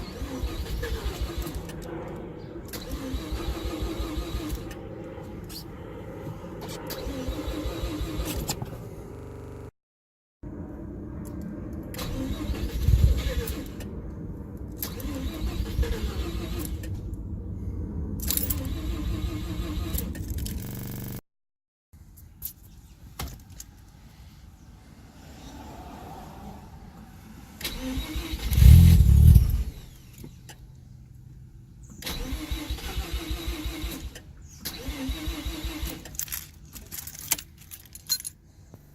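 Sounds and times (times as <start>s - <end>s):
engine cranking on starter: 0.0s - 1.8s, 2.7s - 4.8s, 6.7s - 9.6s, 11.9s - 13.9s, 14.8s - 17.0s, 18.2s - 21.2s, 27.6s - 30.6s, 32.0s - 36.5s.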